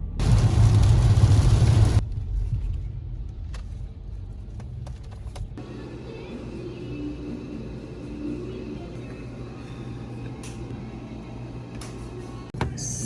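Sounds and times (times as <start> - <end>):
loud rushing noise: 0.0 - 2.0
car driving rumble: 0.0 - 5.6.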